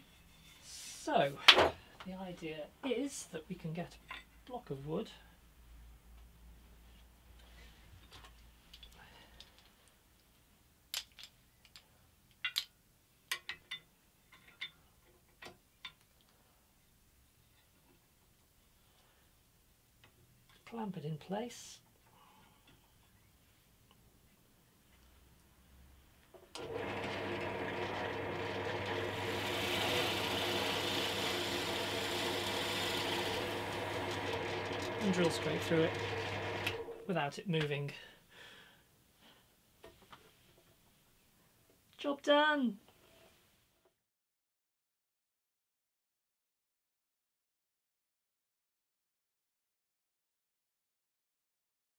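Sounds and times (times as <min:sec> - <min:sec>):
hard objects clicking and knocking: 0:10.9 - 0:16.3
electric drill motor humming: 0:26.6 - 0:37.0.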